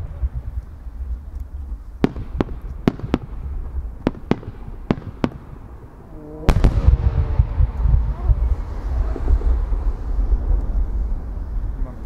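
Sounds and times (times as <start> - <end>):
fireworks popping: 0.0 - 12.0
aerial shells booming: 2.0 - 10.4.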